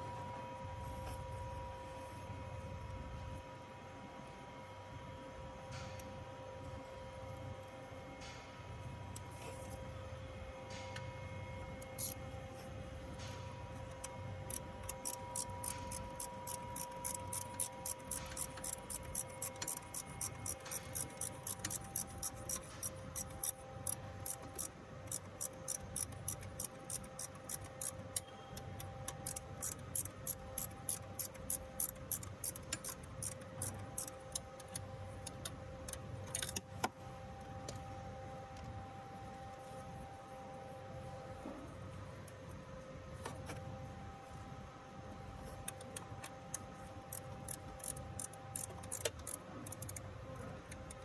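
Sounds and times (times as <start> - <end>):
faint steady hum: 0.0 - 51.0
sharp ticking clicks: 13.9 - 36.7, 45.6 - 51.0.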